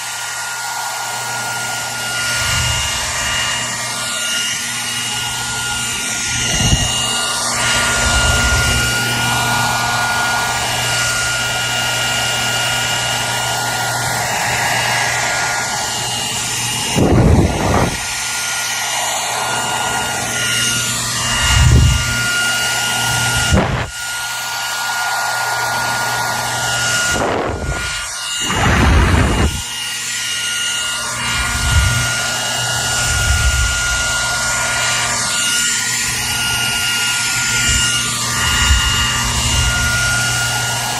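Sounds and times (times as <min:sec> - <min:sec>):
hair dryer running: 0:00.0 - 0:40.9
low air thumps: 0:27.1 - 0:29.7, 0:31.2 - 0:32.2.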